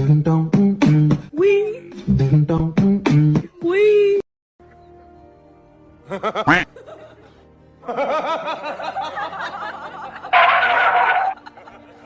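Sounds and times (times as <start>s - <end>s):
music: 0.0s - 12.0s
person laughing: 6.1s - 7.3s.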